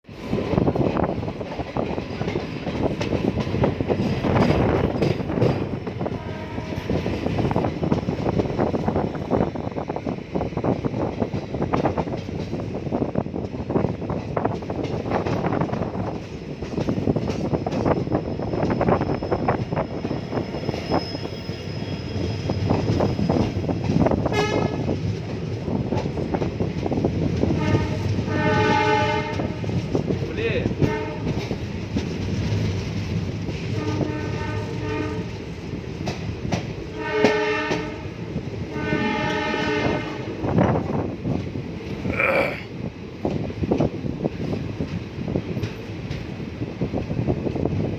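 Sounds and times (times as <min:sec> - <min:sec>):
train wheels clattering on rails: 0:00.1 - 0:42.1, 0:42.7 - 0:47.9
train horn: 0:06.0 - 0:07.1, 0:24.2 - 0:24.9, 0:27.5 - 0:29.8, 0:30.8 - 0:31.5, 0:33.6 - 0:35.4, 0:36.9 - 0:40.4.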